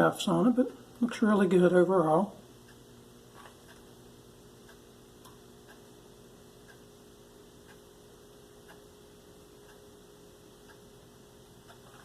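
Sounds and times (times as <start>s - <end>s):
steady low hum: 0.0s - 12.0s
faint irregular ticks: 2.6s - 4.0s, 4.6s - 6.0s, 6.6s - 7.0s, 7.6s - 8.0s, 8.6s - 12.0s.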